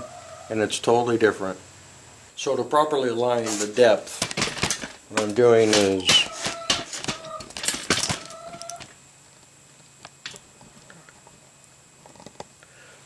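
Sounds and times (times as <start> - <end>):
wooden pieces knocking: 4.2 - 8.9.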